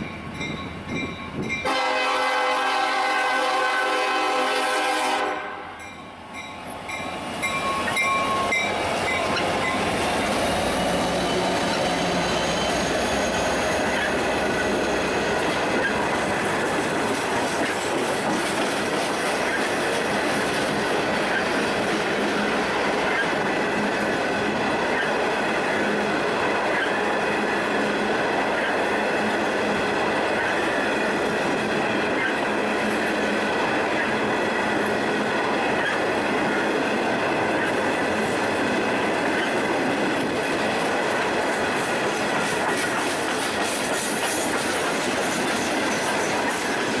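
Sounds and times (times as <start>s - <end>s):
train cars rolling on track: 0.0s - 47.0s
wheels clicking over rail joints: 6.9s - 47.0s
high wheel squeal: 7.5s - 15.9s.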